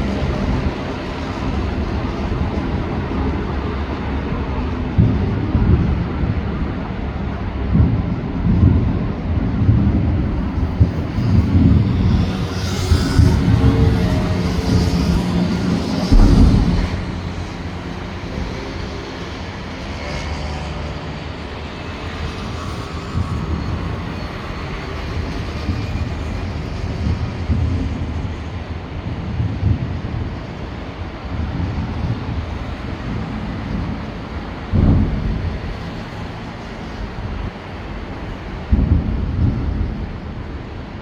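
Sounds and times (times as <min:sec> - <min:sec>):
low rumble: 0:00.0 - 0:19.1
fireworks booming: 0:09.8 - 0:18.7, 0:34.7 - 0:36.0.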